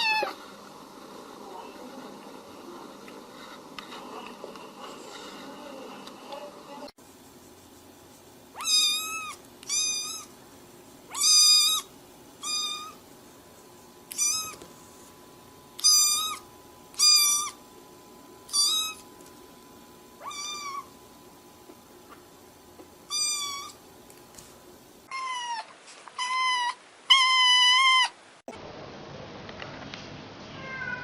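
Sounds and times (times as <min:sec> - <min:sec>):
cat meowing: 0:00.0 - 0:00.4, 0:08.6 - 0:10.3, 0:11.1 - 0:13.0, 0:14.1 - 0:14.6, 0:20.2 - 0:20.9, 0:25.1 - 0:28.2, 0:30.6 - 0:31.0.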